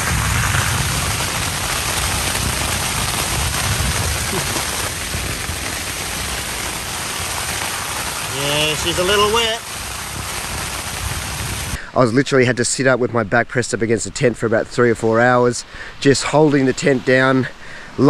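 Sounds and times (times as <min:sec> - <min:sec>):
wind rumbling on microphone: 0:00.0 - 0:11.8
heavy rain on a tent: 0:00.0 - 0:11.9.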